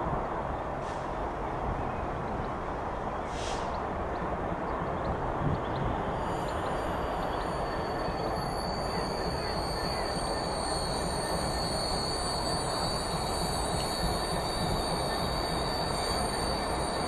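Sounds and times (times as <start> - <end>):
freight train rumbling on rails: 0.0 - 17.0
high-pitched wheel squeal: 7.4 - 17.0.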